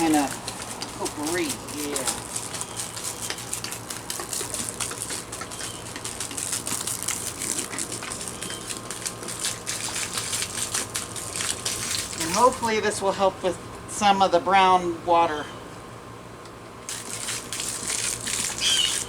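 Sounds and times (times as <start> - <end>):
liquid gushing onto a mat: 0.0 - 12.6, 16.9 - 19.0.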